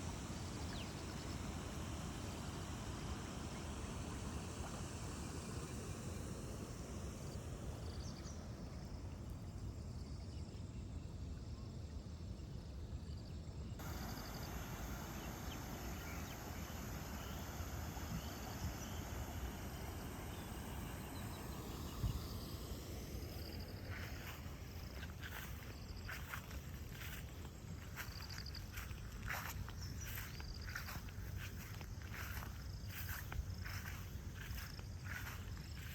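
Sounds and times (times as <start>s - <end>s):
insects chirping: 0.0s - 35.9s
wind rumble on microphone: 13.8s - 35.9s.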